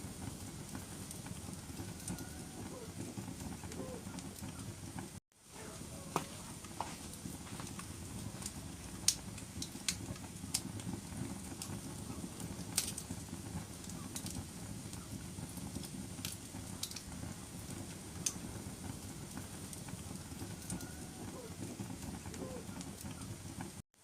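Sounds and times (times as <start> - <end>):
logs crackling and popping: 0.0 - 23.8
low rush of flames: 0.0 - 24.0.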